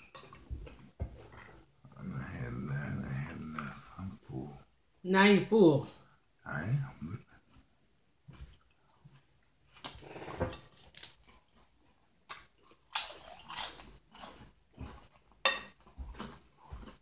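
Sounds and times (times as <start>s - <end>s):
crunching and chewing chips: 10.6s - 17.0s.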